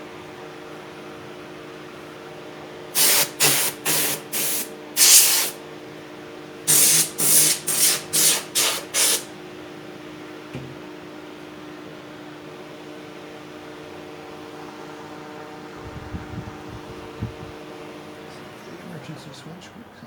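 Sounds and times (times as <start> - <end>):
heater fan humming: 0.0 - 20.0
short loud hissing bursts: 3.0 - 5.6, 6.7 - 9.3.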